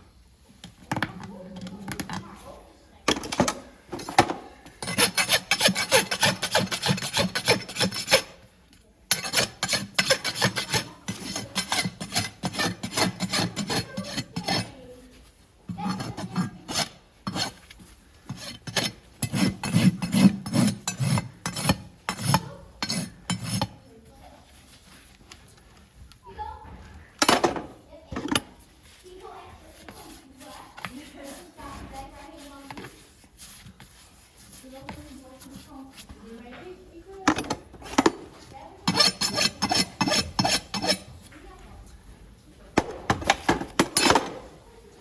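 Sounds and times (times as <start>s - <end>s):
rasp filing hoof: 4.8s - 8.4s, 9.1s - 14.8s, 15.7s - 23.8s, 38.8s - 41.2s.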